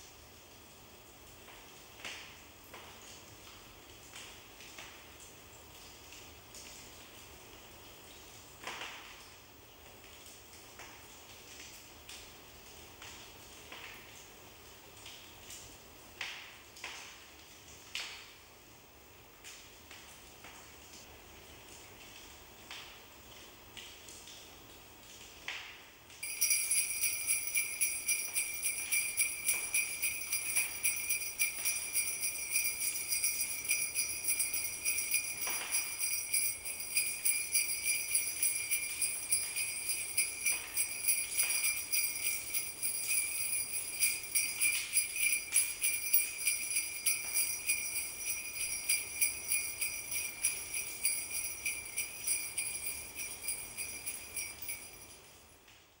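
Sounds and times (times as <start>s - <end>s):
bells jingling: 26.2s - 55.3s.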